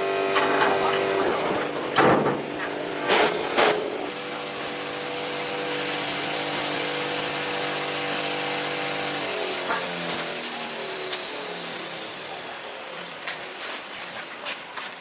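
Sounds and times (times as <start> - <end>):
motor running steadily: 0.0 - 13.2
sharp knocks: 0.4 - 2.8.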